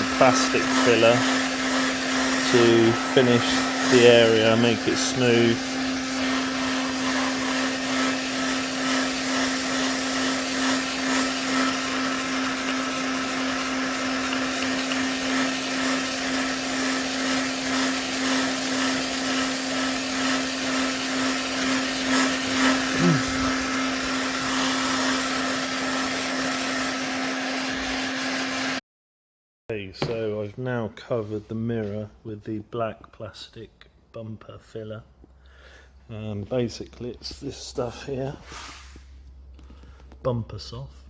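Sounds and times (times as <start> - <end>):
heat gun blowing: 0.0 - 28.8.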